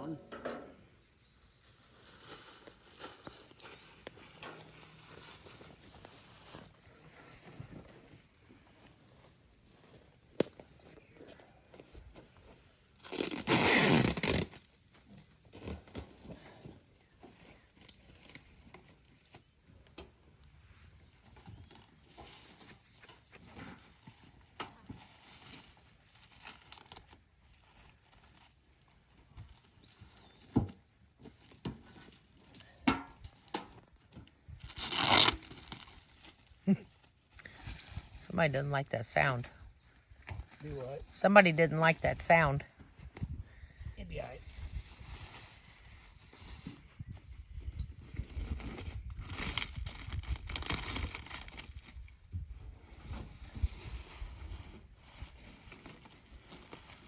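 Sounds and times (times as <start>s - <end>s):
packaging tearing: 13.0s - 14.8s, 25.4s - 28.5s, 34.6s - 36.4s, 48.4s - 52.0s.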